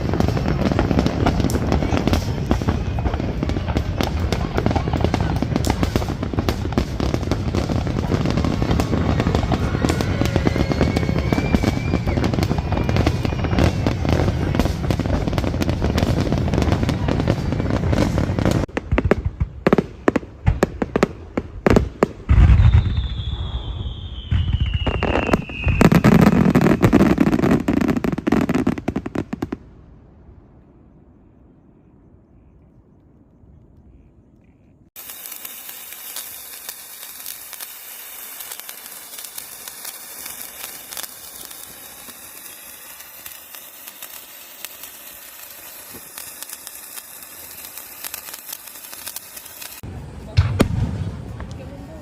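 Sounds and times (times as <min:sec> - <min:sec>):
fireworks crackling: 0:00.0 - 0:30.0, 0:34.9 - 0:52.0
falling whistle: 0:08.8 - 0:14.5, 0:22.5 - 0:27.5
fireworks boom: 0:45.8 - 0:51.9.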